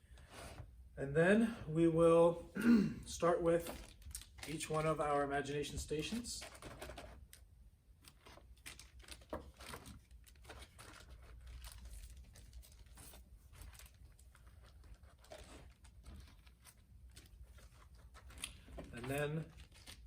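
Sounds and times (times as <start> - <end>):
plastic bags crinkling: 3.5 - 5.2, 8.1 - 20.0.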